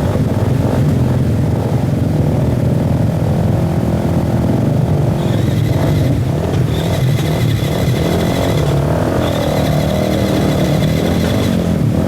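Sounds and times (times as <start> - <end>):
motorcycle engine at low revs: 0.0 - 12.0
thin high whine: 5.2 - 11.7.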